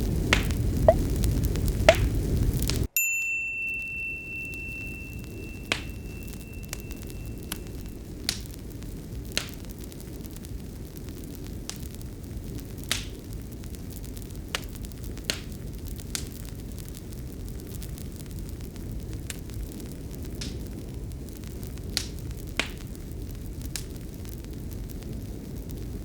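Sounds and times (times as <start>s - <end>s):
fire crackling: 0.0s - 26.0s
bell-like chime ringing: 2.9s - 8.0s.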